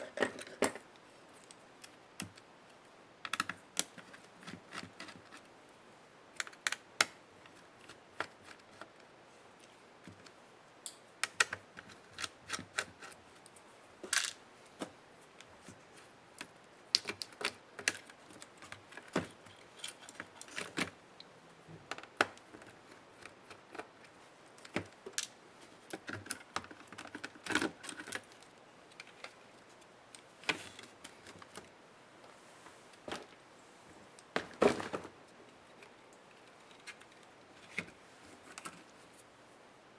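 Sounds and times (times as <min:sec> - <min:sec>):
laptop plastic parts clicking: 0:03.3 - 0:05.5, 0:06.4 - 0:09.1, 0:10.9 - 0:13.2, 0:16.4 - 0:21.0.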